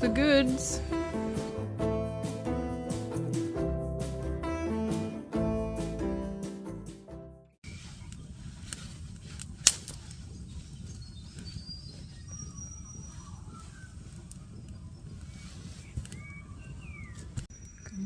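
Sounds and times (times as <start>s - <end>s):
guitar music: 0.0s - 7.2s
birds calling and whistling: 10.3s - 18.0s.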